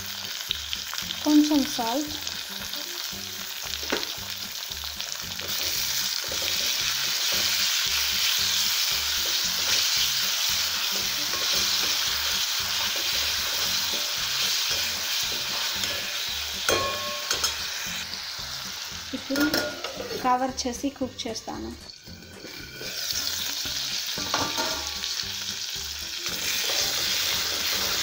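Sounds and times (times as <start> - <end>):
vegetables sizzling in oil: 0.0 - 28.0
spoon scraping metal pan: 5.4 - 7.8, 9.1 - 18.0, 19.2 - 20.5, 21.4 - 25.2, 26.2 - 28.0
spoon clinking: 15.8 - 17.7.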